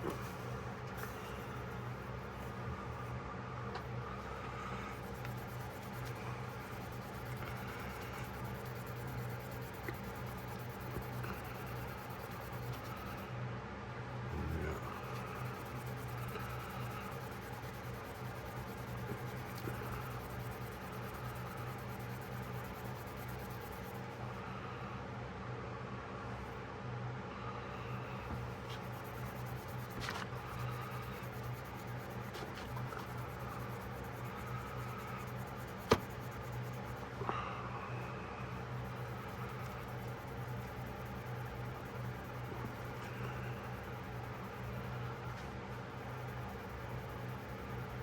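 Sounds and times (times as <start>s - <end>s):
steady low hum: 0.0s - 48.0s
polishing wadding rubbing metal: 4.9s - 13.2s.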